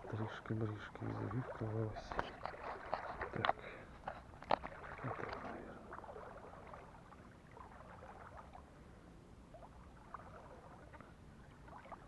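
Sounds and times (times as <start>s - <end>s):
river water trickling: 0.0s - 12.0s
soft water splashes: 0.0s - 12.0s.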